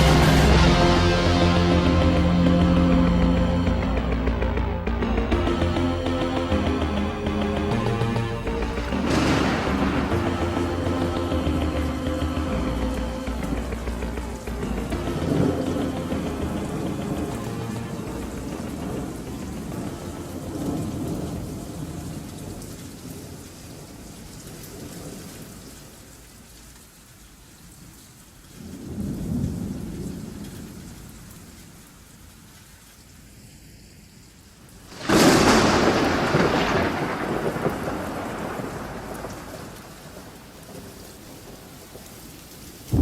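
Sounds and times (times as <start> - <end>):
loud thunderclap: 0.0 - 5.8, 7.6 - 25.6, 28.6 - 31.1, 34.9 - 43.0
rolling thunder: 0.0 - 26.0, 28.6 - 31.8, 34.9 - 43.0
rain falling: 0.0 - 43.0.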